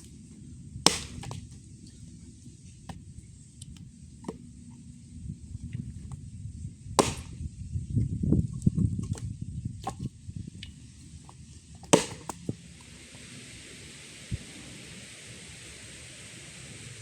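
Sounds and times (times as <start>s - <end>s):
sharp knocks: 11.8s - 12.5s.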